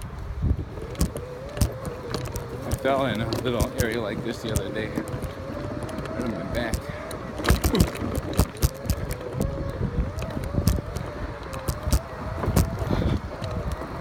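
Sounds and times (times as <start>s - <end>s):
electric motors whining: 0.0s - 14.0s
knocks and clunks over bumps: 0.0s - 14.0s.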